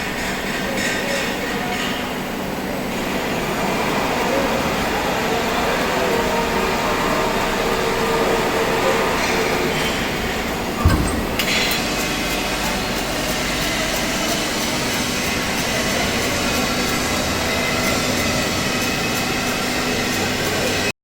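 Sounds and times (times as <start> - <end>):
machine hum and hiss: 0.0 - 20.9
knock: 10.8 - 11.7.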